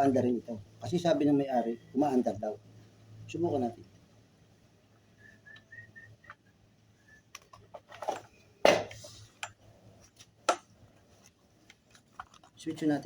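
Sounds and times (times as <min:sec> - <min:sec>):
objects being handled: 0:07.1 - 0:13.0.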